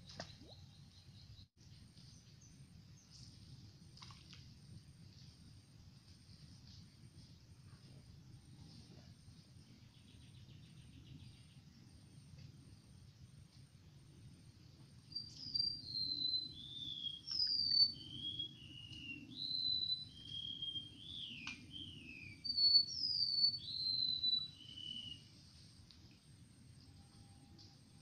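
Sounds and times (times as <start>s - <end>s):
songbird whistling: 15.1s - 25.3s.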